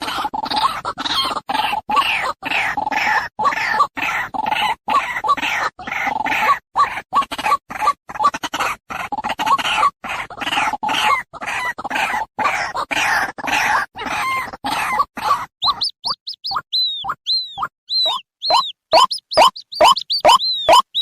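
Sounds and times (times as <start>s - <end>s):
bird croaking notes: 15.6s - 21.0s
bird sharp high notes: 15.6s - 21.0s.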